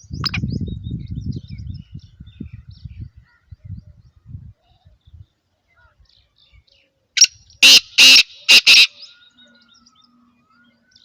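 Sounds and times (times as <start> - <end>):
francolin calling harsh notes: 7.6 - 9.1.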